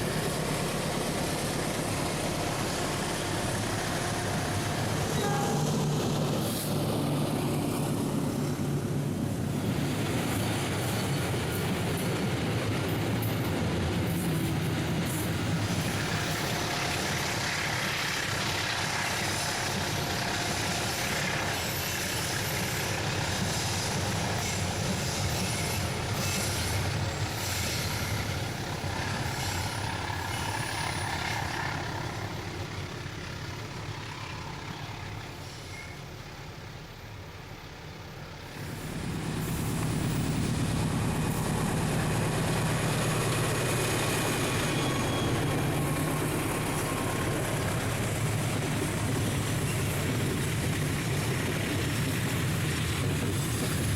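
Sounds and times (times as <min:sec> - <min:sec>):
train wagons clattering on rails: 0:00.0 - 0:36.2, 0:38.6 - 0:53.9
diesel locomotive engine rumble: 0:00.0 - 0:53.9
faint high squeals: 0:35.4 - 0:36.2, 0:44.3 - 0:45.9.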